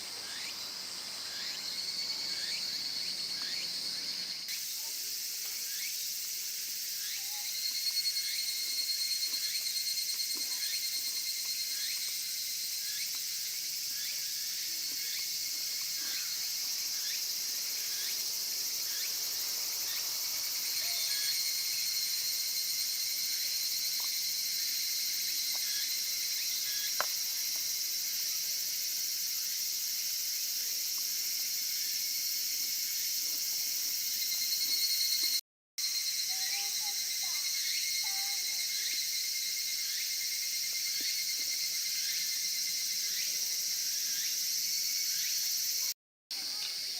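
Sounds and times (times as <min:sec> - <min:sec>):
insects trilling: 0:00.0 - 0:46.9.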